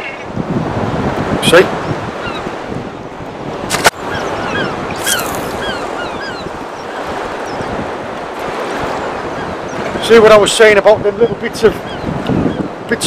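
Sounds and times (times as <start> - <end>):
sea noise: 0.0 - 13.0
wind: 0.0 - 13.0
birds calling sharply: 3.8 - 8.0, 11.8 - 12.7.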